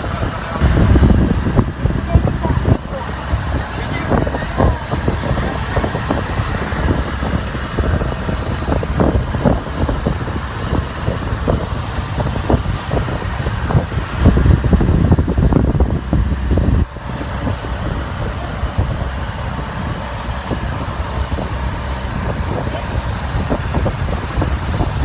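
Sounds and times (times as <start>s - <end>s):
low rumble of moving vehicle: 0.0s - 25.0s
wind noise on microphone: 0.0s - 25.0s.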